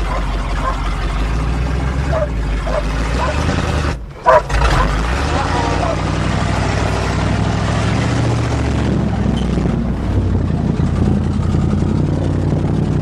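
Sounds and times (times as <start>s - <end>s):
truck engine running under load: 0.0s - 13.0s.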